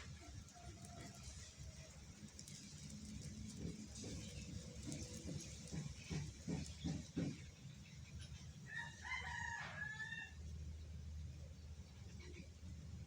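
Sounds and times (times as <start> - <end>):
rooster crowing: 8.7 - 10.4.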